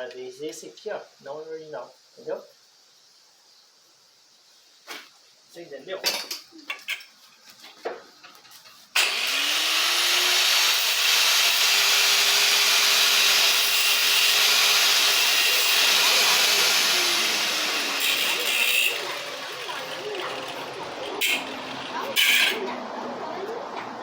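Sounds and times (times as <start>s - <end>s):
motor-driven machine whining: 9.0s - 22.6s.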